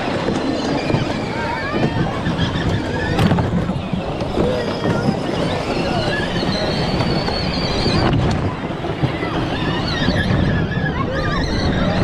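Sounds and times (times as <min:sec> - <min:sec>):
crowd voices din: 0:00.0 - 0:12.0
long high squeal: 0:00.5 - 0:08.3.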